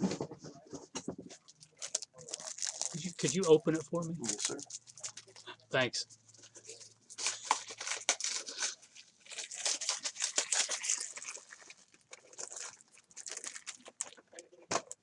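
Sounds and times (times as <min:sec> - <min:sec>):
plastic packaging crinkling and tearing: 0:01.3 - 0:05.6, 0:06.3 - 0:15.0.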